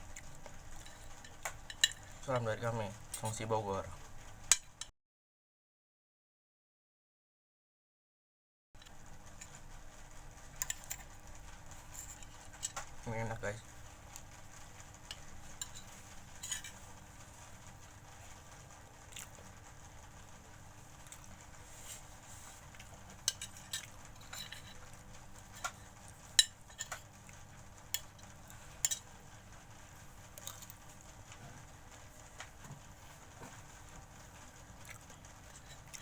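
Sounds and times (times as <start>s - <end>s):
cutlery clinking on plate: 15.5s - 16.8s, 23.2s - 24.8s, 25.6s - 27.1s.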